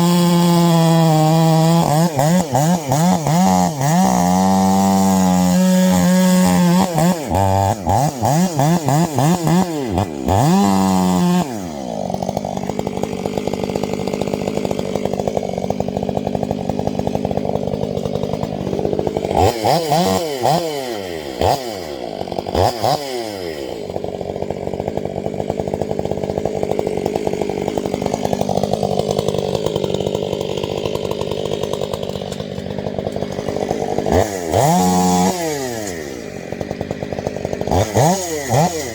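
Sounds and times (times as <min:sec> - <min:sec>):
chainsaw running: 0:00.0 - 0:38.9
chainsaw throttle blips: 0:00.0 - 0:38.9.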